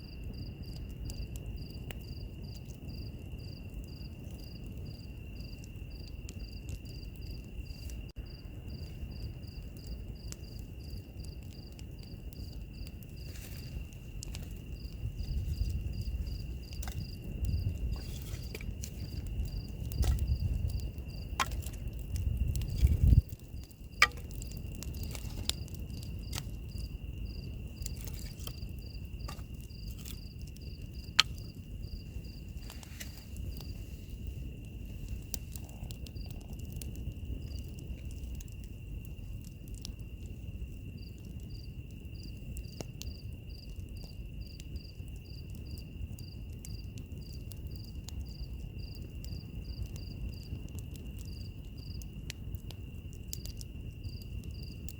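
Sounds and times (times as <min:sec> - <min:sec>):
cricket chirping in pulses: 0:00.0 - 0:54.9
cricket trilling: 0:00.0 - 0:54.9
wood fire crackling: 0:00.0 - 0:54.9.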